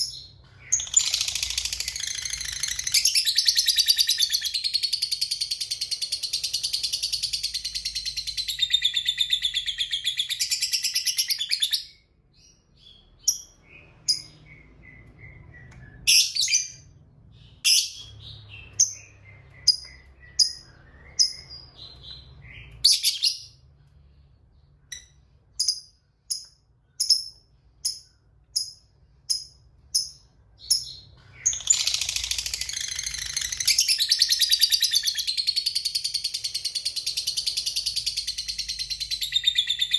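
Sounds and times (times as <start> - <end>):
lovebird chattering trill: 0.7 - 11.6.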